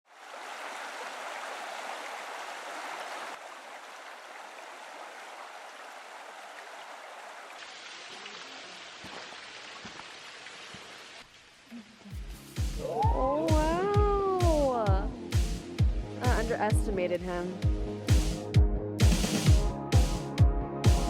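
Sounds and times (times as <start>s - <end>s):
stream water flowing: 0.0s - 14.9s.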